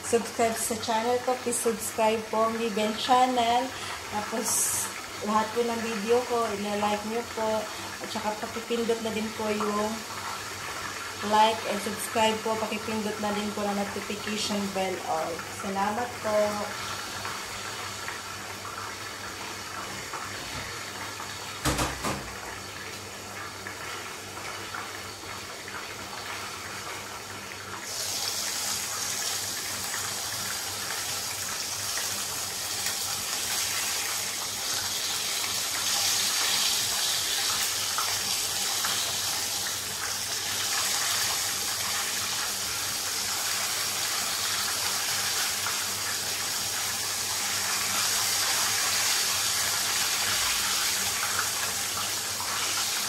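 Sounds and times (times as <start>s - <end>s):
chicken sizzling in oil: 0.0s - 53.0s
sharp knock: 21.6s - 22.3s.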